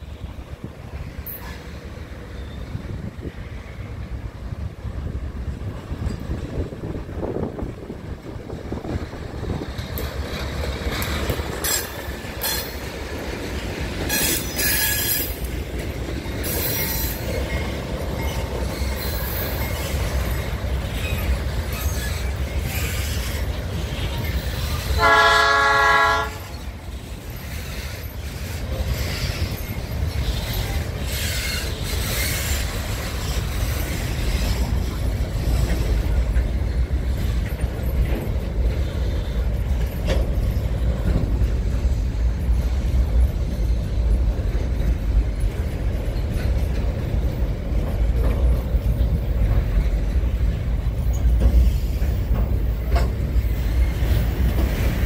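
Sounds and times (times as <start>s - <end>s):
freight train wheels rumbling: 0.0s - 55.0s
train horn chord: 25.0s - 26.6s.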